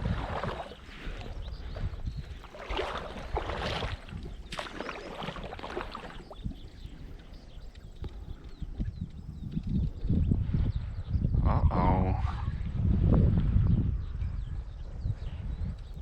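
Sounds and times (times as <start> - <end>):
water splashing in a river: 0.0 - 6.8.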